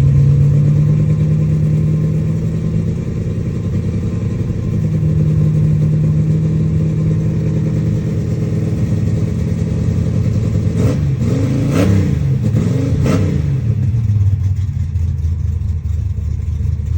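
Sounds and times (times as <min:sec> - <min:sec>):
car engine idling and revving: 0:00.0 - 0:16.9.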